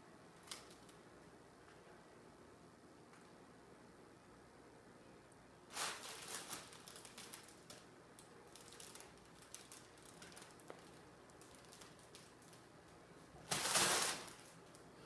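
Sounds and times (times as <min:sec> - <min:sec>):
cat rustling in fabric tunnel: 0:05.7 - 0:07.6.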